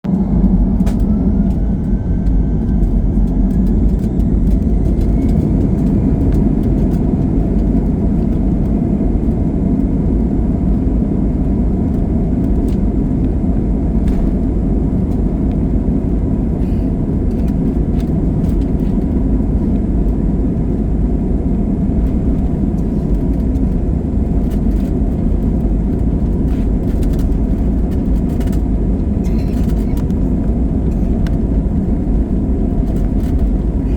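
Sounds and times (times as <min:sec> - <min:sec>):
jet engine rumble and roar: 0:00.0 - 0:33.9
jet engines spooling up whine: 0:00.1 - 0:33.9.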